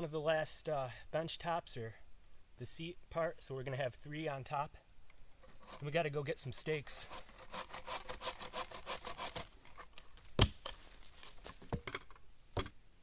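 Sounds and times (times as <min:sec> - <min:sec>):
hand saw cutting log: 0:05.4 - 0:06.0, 0:06.9 - 0:09.8.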